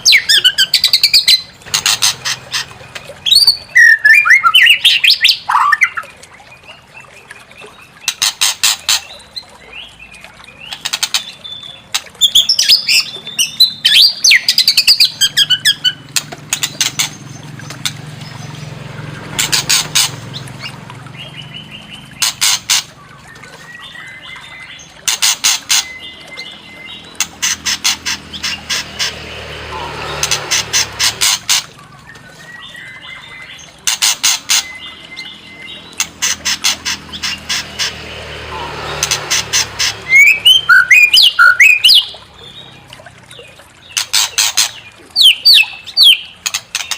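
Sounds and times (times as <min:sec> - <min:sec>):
bird harsh rattling calls: 0:00.0 - 0:06.0, 0:08.0 - 0:09.2, 0:11.9 - 0:23.0, 0:24.0 - 0:42.2, 0:43.8 - 0:46.9
bird whistled song phrases: 0:03.2 - 0:06.8, 0:40.1 - 0:42.2.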